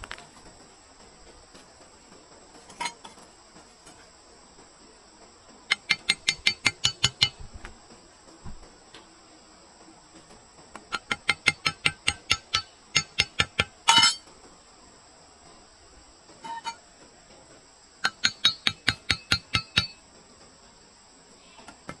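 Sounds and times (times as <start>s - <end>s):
high insect chirring: 5.4s - 9.6s, 10.8s - 22.0s
sharp metallic clinks: 11.0s - 14.2s, 18.0s - 20.0s.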